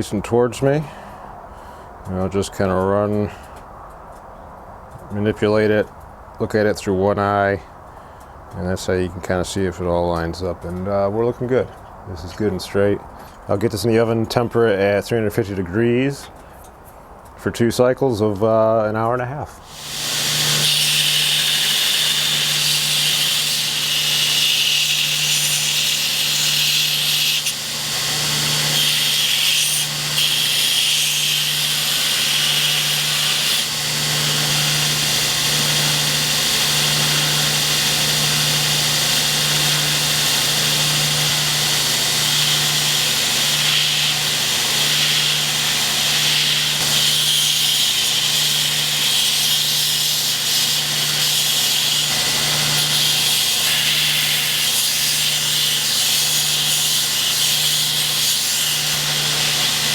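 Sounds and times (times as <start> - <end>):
power grinder grinding steel: 19.6 - 59.9.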